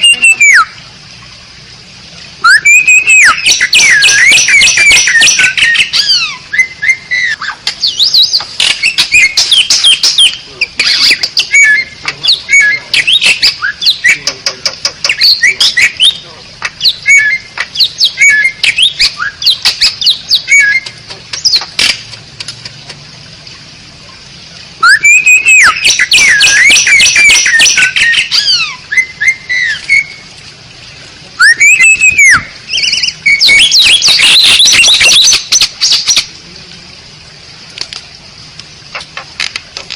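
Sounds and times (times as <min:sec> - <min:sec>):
starling singing: 0:00.0 - 0:00.8, 0:02.4 - 0:22.0, 0:24.8 - 0:30.2, 0:31.4 - 0:36.3.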